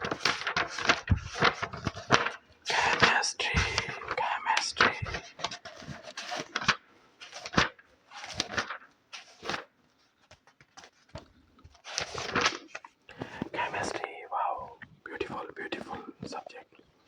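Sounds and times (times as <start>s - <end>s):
paper rustling: 0.0s - 16.7s
light taps on paper: 13.1s - 14.1s.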